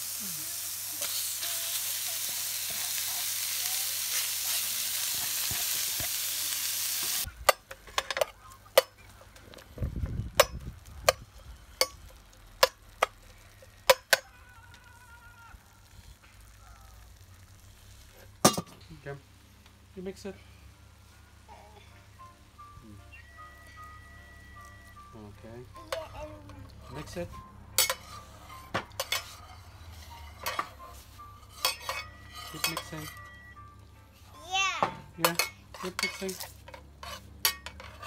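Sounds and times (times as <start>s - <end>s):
beef and onions sizzling in pan: 0.0s - 14.8s, 15.5s - 19.9s, 25.8s - 33.6s
metal spoon clinking against pan: 27.8s - 30.8s, 31.4s - 33.3s, 35.2s - 38.0s.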